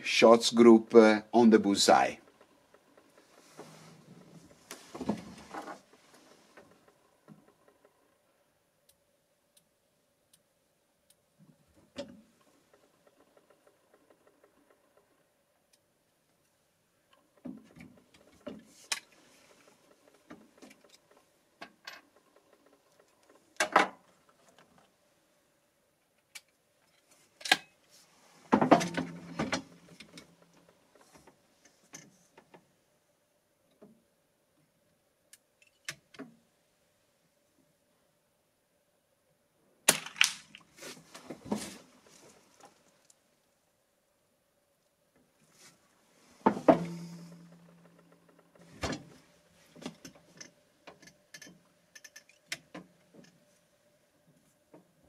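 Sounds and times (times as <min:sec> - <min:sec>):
rifle clatter: 0:39.9 - 0:40.7.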